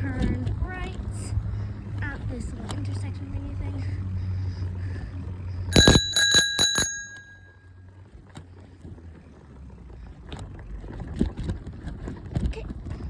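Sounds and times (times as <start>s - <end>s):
bike rolling with rattles and clicks: 0.0s - 13.0s
bicycle bell ringing: 5.7s - 7.8s.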